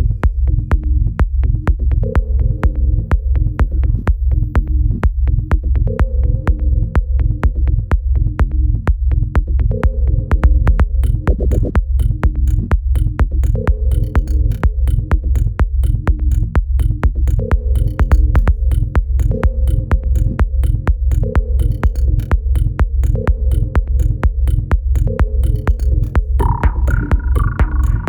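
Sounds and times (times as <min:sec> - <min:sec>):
crisp high ticks: 0:11.0 - 0:28.0
electronic dance music: 0:11.0 - 0:28.0.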